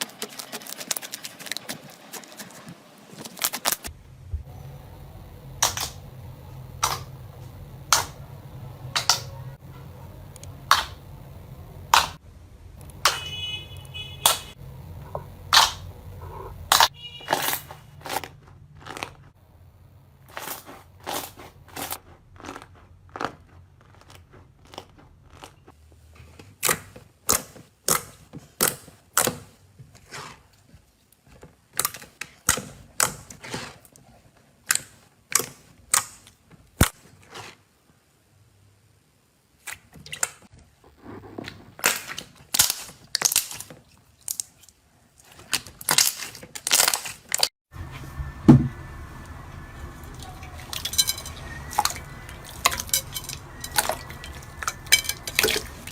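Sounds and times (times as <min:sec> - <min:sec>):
slime clicking and popping: 0:10.4 - 0:11.0, 0:15.1 - 0:15.8.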